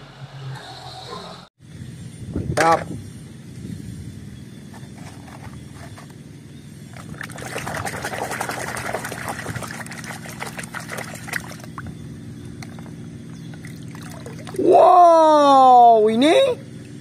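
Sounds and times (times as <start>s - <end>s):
hand splashing water in a tub: 7.0s - 11.8s.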